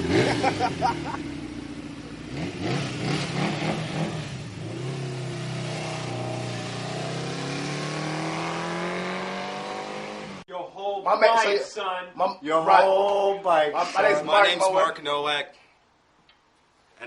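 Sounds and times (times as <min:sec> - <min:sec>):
motorcycle engine accelerating: 0:00.0 - 0:10.4.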